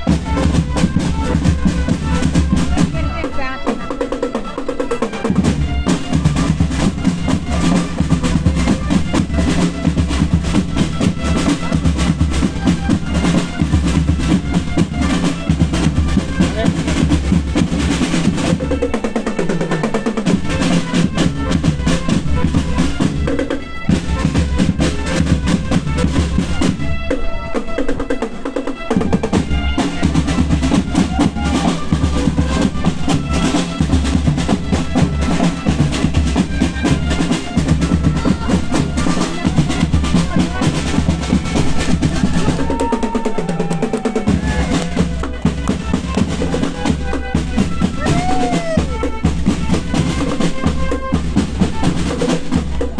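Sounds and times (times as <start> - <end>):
bass drum beats: 0.0 - 3.9, 29.0 - 52.9
marching band playing: 0.0 - 52.9
snare drum rolls: 29.0 - 52.9.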